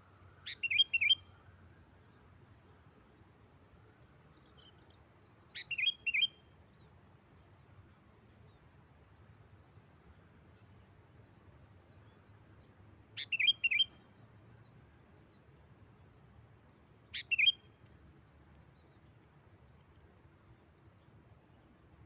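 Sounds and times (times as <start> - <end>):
bird singing short phrases: 0.4 - 1.4, 5.5 - 6.4, 12.5 - 14.0, 17.1 - 17.8
faint bird chirps: 0.4 - 1.5, 3.6 - 6.9, 10.4 - 15.9, 17.1 - 20.0.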